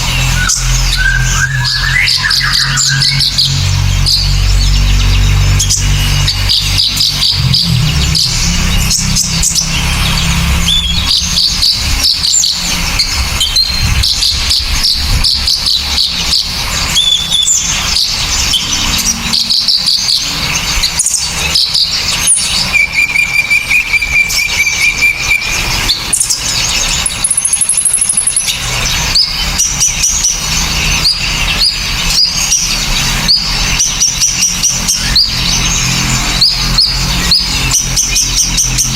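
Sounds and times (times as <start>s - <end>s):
low rumble: 0.0s - 23.0s
songbirds chirping: 0.0s - 38.9s.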